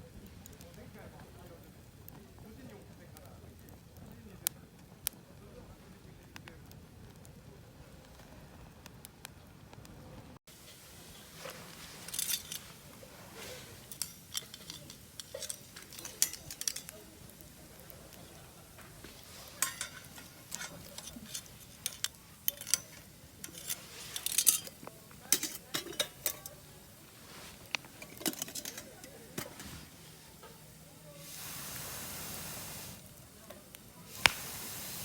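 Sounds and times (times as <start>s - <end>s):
metal cookware clinking and scraping: 10.5s - 31.6s.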